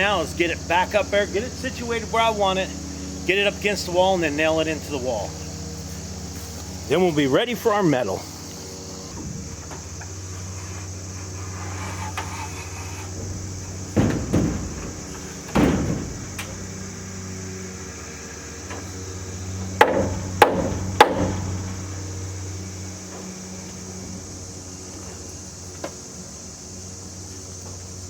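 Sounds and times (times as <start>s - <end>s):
steady low hum: 0.0s - 28.0s
hammer driving nails into wood: 19.8s - 21.6s.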